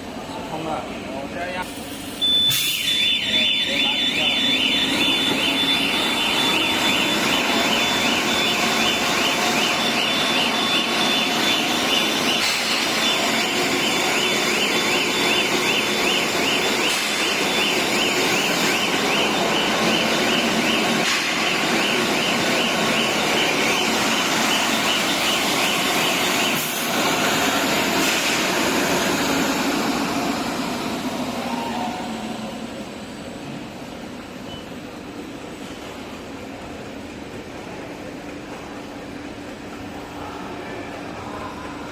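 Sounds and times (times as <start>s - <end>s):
filling line machinery running: 0.0s - 41.9s
warbling electronic alarm: 2.2s - 33.4s.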